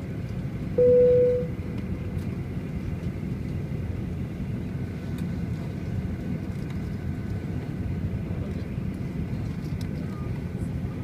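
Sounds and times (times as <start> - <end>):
low engine rumble: 0.0 - 11.0
faint high whine: 0.7 - 1.8.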